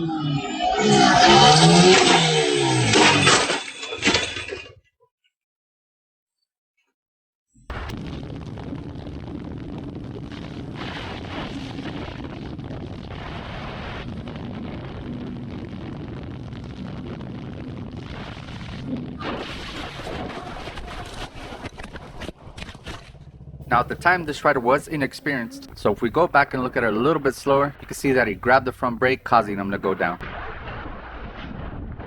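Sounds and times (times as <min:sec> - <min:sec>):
motorcycle engine running: 0:22.4 - 0:24.4.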